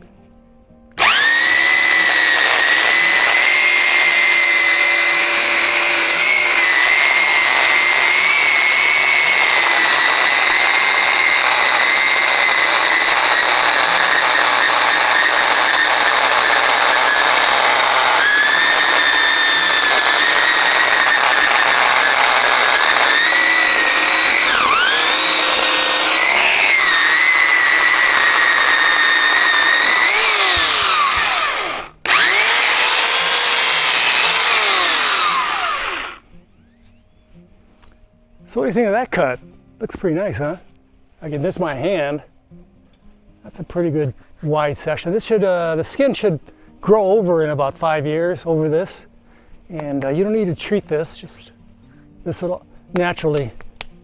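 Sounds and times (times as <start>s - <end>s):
electric chainsaw cutting branch: 1.0s - 36.2s.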